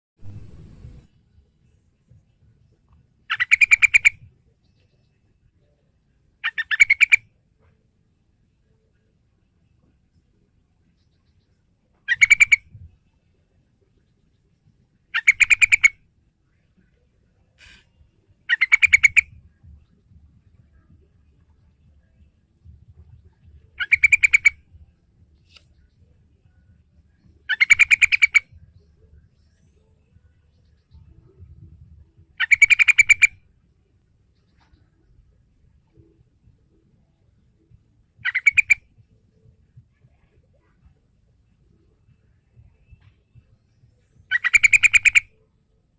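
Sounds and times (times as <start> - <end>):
bulbul chattering calls: 3.3 - 4.3, 6.4 - 7.2, 12.1 - 12.8, 15.1 - 16.0, 17.6 - 19.4, 23.7 - 24.7, 27.2 - 28.6, 32.2 - 33.4, 38.2 - 39.4, 43.8 - 45.4.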